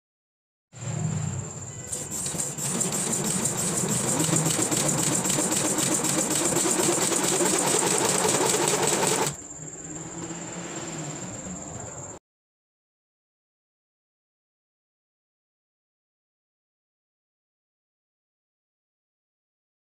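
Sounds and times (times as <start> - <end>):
high-pitched whine: 0.8 - 12.2
shake table mechanical rattle: 1.9 - 9.4.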